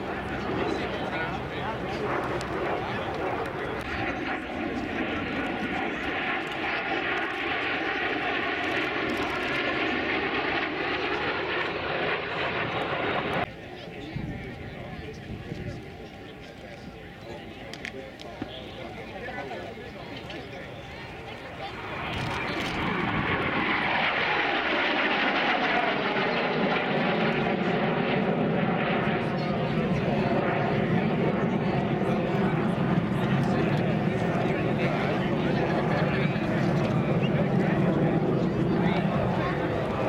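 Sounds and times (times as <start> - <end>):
jet engine rushing with faint whine: 0.0 - 40.0.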